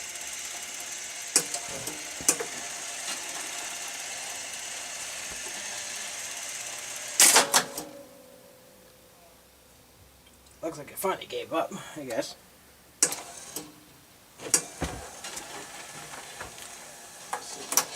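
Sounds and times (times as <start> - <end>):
jukebox mechanism whirring: 0.0 - 8.0, 13.0 - 13.8, 14.4 - 17.9
loud clunks: 14.5 - 15.2.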